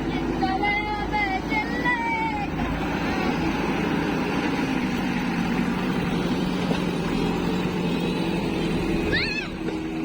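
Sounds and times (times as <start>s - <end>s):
heavy diesel engine running: 0.0s - 10.0s.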